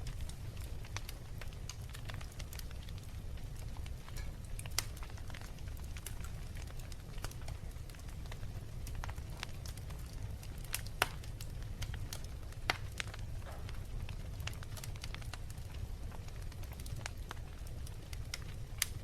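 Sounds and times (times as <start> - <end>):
loud fire pops: 0.0 - 19.0
low fire rumble: 0.0 - 19.0
wood fire crackling: 0.0 - 19.0.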